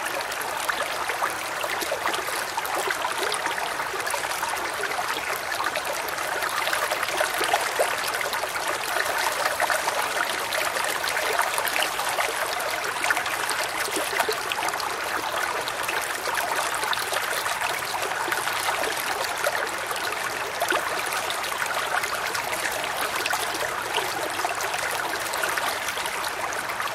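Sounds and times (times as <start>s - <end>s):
creek babbling over stones: 0.0s - 26.9s.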